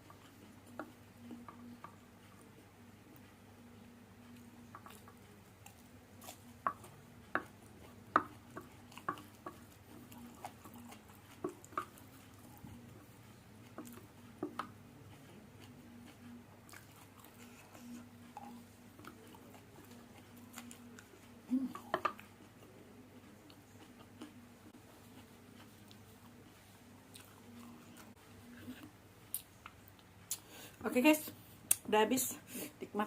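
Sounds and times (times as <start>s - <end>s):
faint steady hum: 0.0s - 33.0s
chewing noodles: 4.2s - 30.4s.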